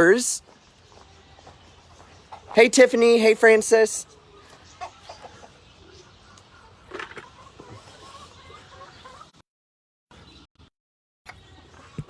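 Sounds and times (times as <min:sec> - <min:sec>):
chickens clucking softly: 0:00.8 - 0:02.6, 0:04.1 - 0:09.4, 0:11.3 - 0:12.0.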